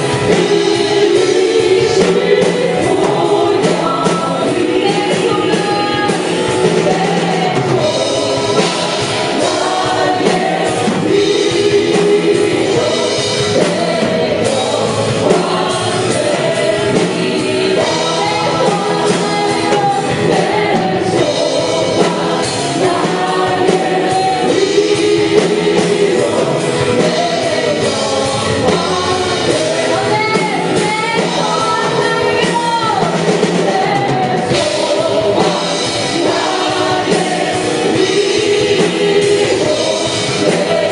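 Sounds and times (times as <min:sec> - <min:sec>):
group singing with band: 0:00.0 - 0:40.9.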